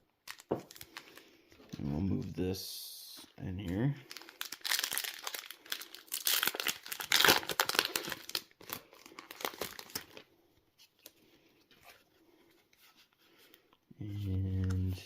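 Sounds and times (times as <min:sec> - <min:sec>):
foil wrapper crinkling: 0:00.2 - 0:01.2, 0:04.1 - 0:10.3.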